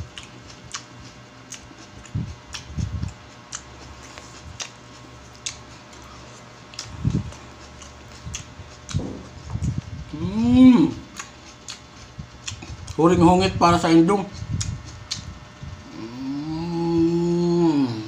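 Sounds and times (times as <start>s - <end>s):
biting: 0.1s - 9.8s, 10.9s - 13.0s
wet mouth clicks and smacks: 1.5s - 6.0s, 6.7s - 9.0s, 11.1s - 13.0s, 14.4s - 15.3s
low thuds: 8.9s - 9.9s.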